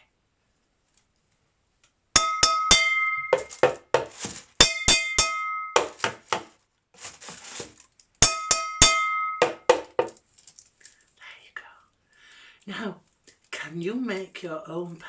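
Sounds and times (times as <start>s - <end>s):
metal saucepan struck ringing: 2.2s - 3.7s, 4.6s - 6.0s, 8.2s - 9.8s.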